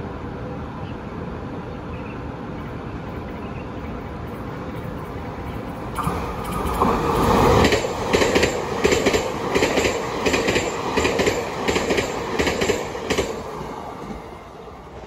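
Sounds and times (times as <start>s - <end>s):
train rumble: 0.0s - 15.0s
train wheels clacking: 5.6s - 14.4s.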